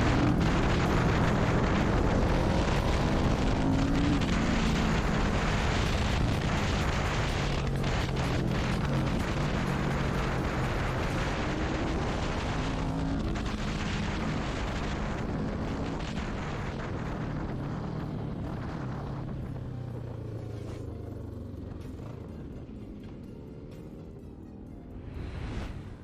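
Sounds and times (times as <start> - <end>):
loud rushing noise: 0.0 - 18.9, 25.0 - 26.0
motorcycle engine at speed: 0.0 - 26.0.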